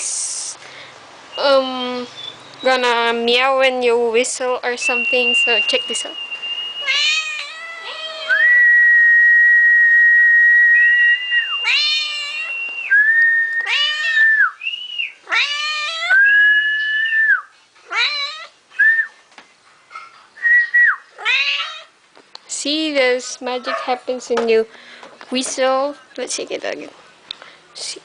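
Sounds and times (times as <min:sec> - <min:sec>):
person whistling held notes: 0:04.8 - 0:06.9, 0:08.3 - 0:11.6, 0:12.4 - 0:13.7, 0:14.3 - 0:15.2, 0:20.4 - 0:21.0
cat meowing: 0:06.8 - 0:08.5, 0:11.6 - 0:12.7, 0:13.6 - 0:14.6, 0:15.2 - 0:16.2, 0:17.9 - 0:18.6, 0:21.2 - 0:21.9.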